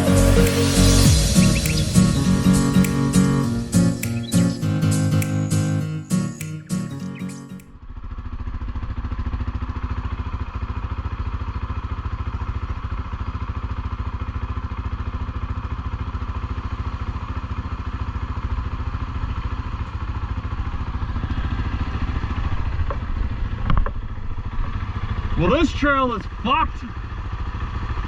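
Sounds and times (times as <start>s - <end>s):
atv engine running: 8.0s - 28.0s.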